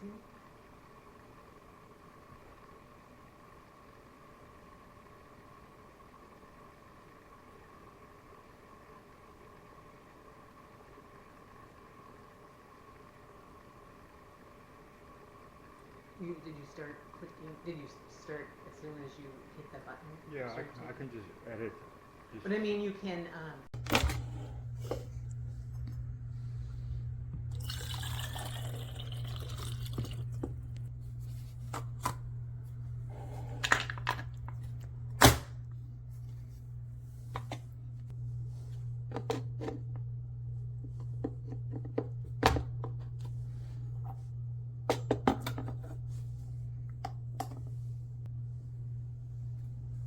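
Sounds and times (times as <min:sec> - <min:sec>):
steady low hum: 0:00.0 - 0:50.0
coffee trickling into cup: 0:27.5 - 0:30.8.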